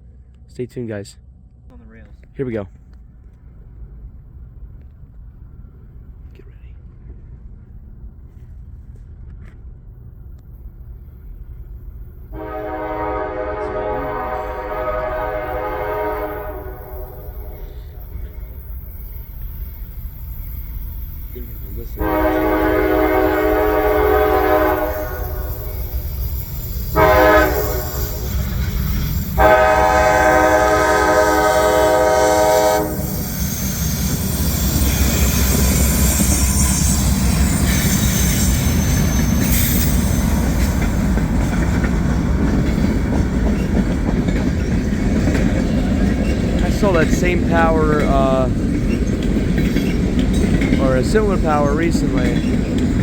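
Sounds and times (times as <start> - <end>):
freight train rumbling past: 1.0 - 53.0
locomotive air horn blasts: 12.3 - 18.1, 21.9 - 26.0, 26.9 - 28.5, 29.4 - 33.2
wheels clicking over rail joints: 33.1 - 53.0.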